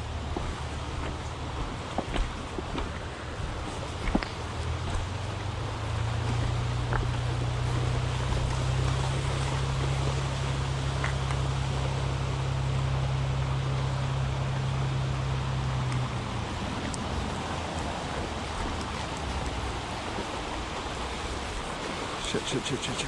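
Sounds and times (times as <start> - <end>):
low motor hum: 0.0 - 23.0
water rushing: 0.0 - 23.0.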